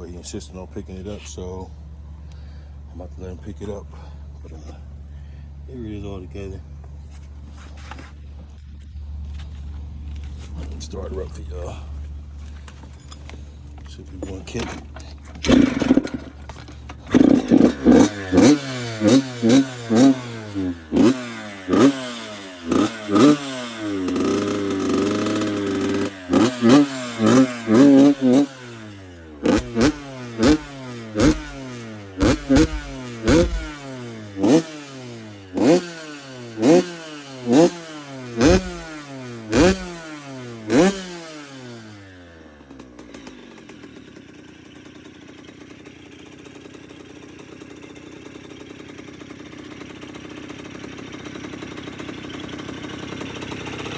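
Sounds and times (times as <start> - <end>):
dirt bike engine revving: 15.2 - 47.7.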